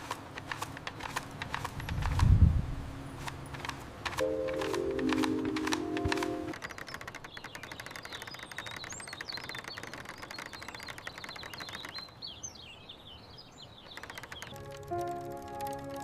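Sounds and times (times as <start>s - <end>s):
dense fast ticking: 3.6s - 12.1s, 13.9s - 16.0s
small birds chirping: 4.8s - 16.0s.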